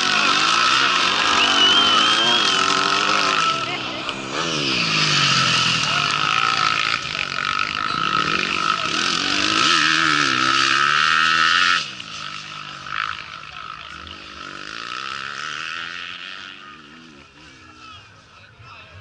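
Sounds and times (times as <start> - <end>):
motorcycle engine revving hard: 0.0 - 17.8.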